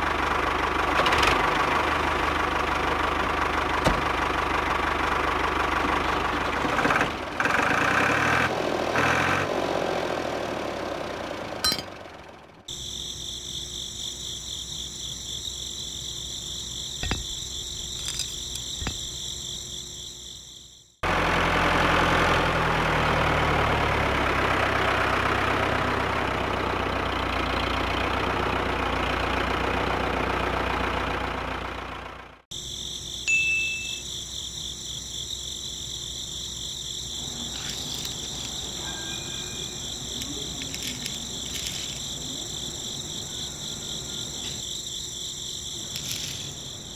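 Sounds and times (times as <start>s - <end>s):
crickets chirring: 12.7s - 21.0s, 32.5s - 46.9s
small electric motor and gears: 39.6s - 42.3s.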